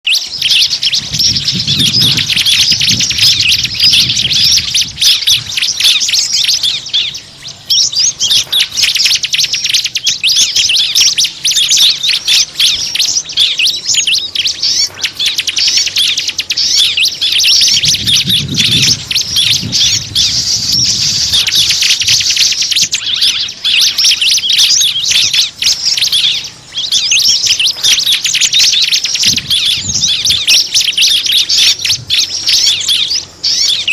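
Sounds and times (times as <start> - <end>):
small birds chirping rapidly: 0.0 - 33.9
low rumbling: 0.3 - 8.5, 16.6 - 22.4.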